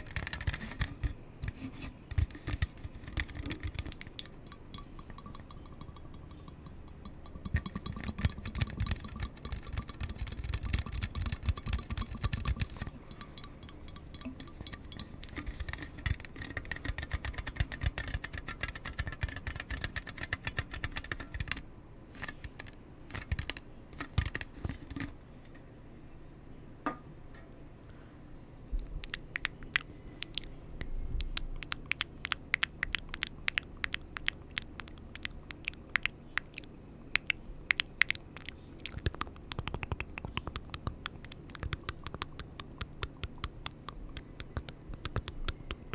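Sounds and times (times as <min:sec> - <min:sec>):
rapid clicking and crackling: 0:02.2 - 0:13.8, 0:14.4 - 0:21.6.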